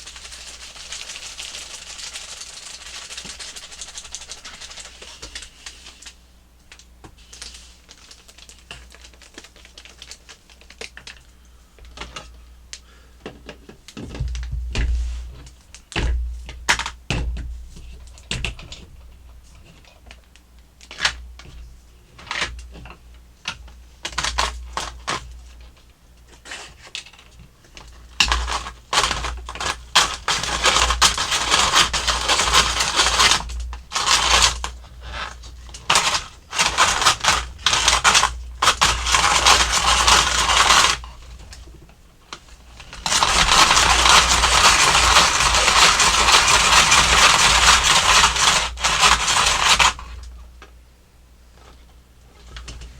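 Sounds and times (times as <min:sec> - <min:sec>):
ice shaver grinding scrape: 0:28.2 - 0:41.3, 0:42.8 - 0:50.2.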